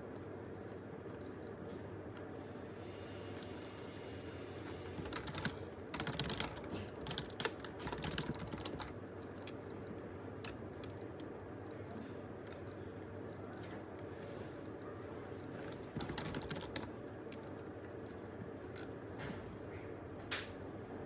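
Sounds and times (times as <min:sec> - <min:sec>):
steady low hum: 0:00.0 - 0:21.0
typing on computer keyboard: 0:05.0 - 0:13.7, 0:15.4 - 0:18.2.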